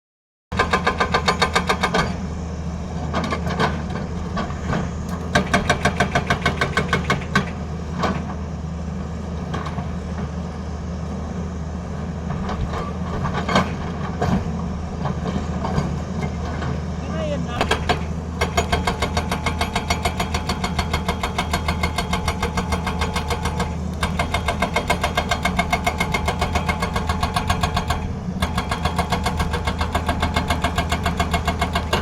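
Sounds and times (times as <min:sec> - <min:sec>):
diesel engine running: 0:00.6 - 0:32.0
hydraulic breaker hammering: 0:17.6 - 0:32.0.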